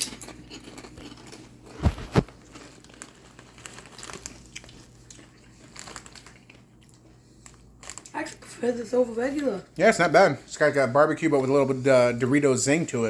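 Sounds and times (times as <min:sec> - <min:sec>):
chip bag crackling: 0:00.0 - 0:08.6
people chewing crunchy chips: 0:00.0 - 0:09.2.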